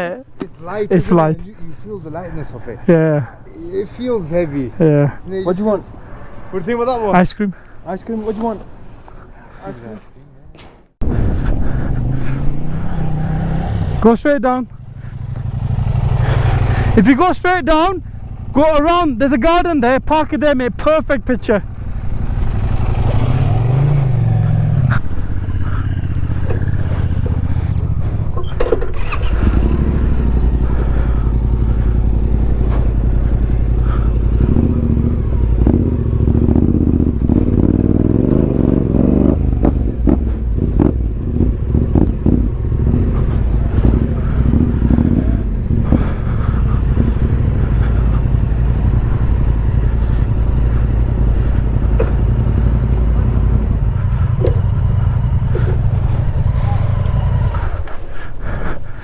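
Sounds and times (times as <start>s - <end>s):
motorcycle engine revving: 11.0s - 19.1s, 20.6s - 58.6s.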